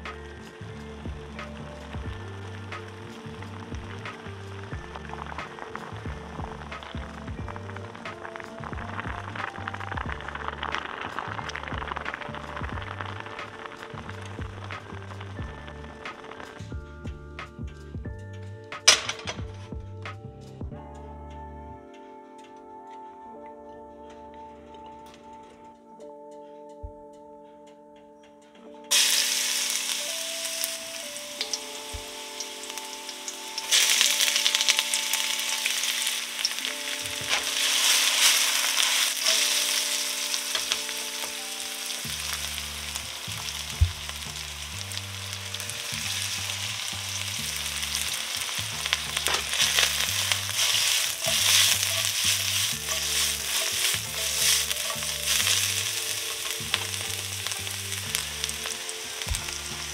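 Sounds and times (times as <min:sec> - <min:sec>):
light background music: 0:00.0 - 0:59.9
garlic sizzling in oil: 0:28.9 - 0:59.9.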